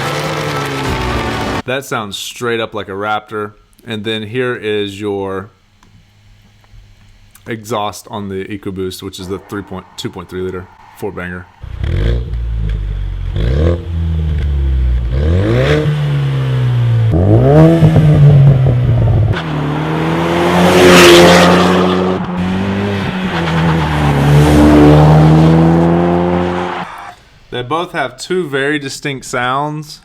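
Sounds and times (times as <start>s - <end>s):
car exhaust revving: 0.0s - 1.6s, 9.2s - 26.9s.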